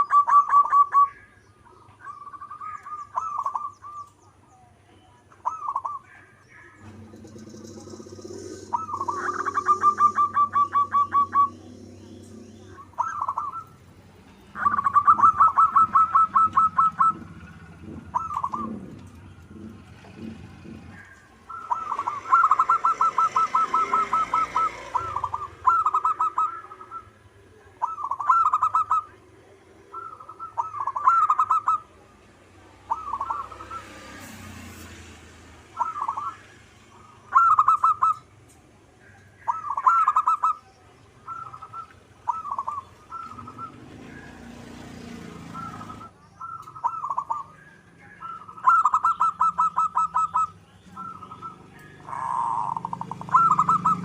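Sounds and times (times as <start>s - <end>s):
dove cooing: 0.0s - 4.7s, 5.3s - 34.3s, 35.2s - 54.0s
faint high bird chirps: 0.0s - 19.5s, 39.0s - 44.5s, 45.4s - 54.0s.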